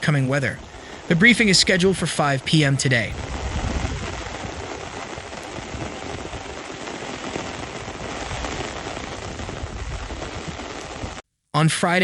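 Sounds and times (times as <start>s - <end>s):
heavy rain on hard surfaces: 0.0s - 11.2s.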